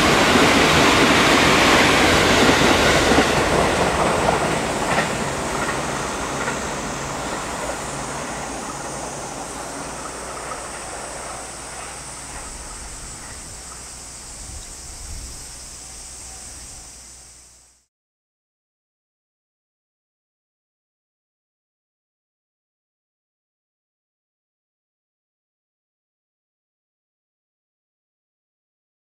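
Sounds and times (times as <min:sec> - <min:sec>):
train wheels clicking on rail joints: 0:00.0 - 0:17.2.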